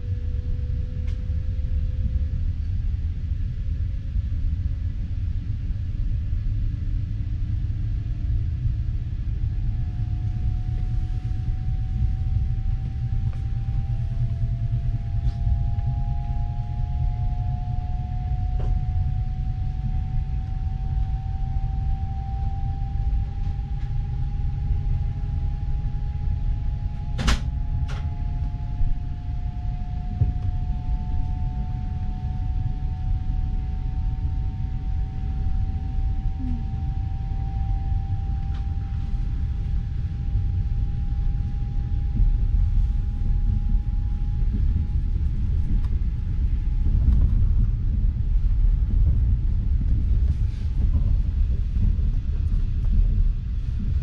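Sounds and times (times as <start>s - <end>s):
faint rising whine: 0.0s - 54.0s
train carriage rumbling on rails: 9.4s - 20.3s, 41.4s - 54.0s.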